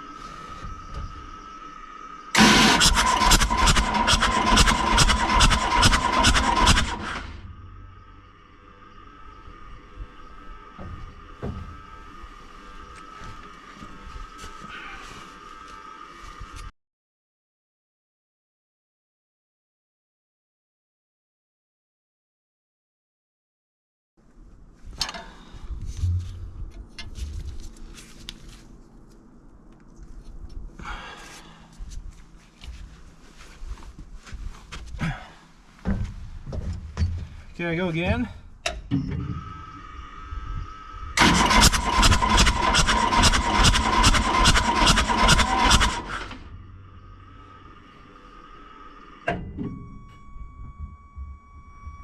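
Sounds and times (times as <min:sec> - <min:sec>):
diesel engine cranking: 0:02.3 - 0:13.1, 0:38.7 - 0:52.0
dull low thump: 0:10.8 - 0:11.8, 0:35.8 - 0:39.4.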